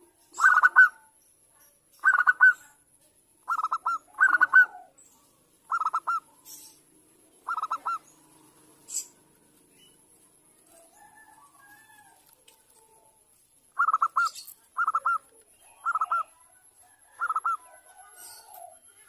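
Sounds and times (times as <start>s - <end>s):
dove cooing: 0.0s - 1.1s, 2.0s - 2.7s, 3.4s - 5.0s, 5.6s - 9.3s, 13.8s - 19.0s
faint bird chirping: 0.0s - 19.0s.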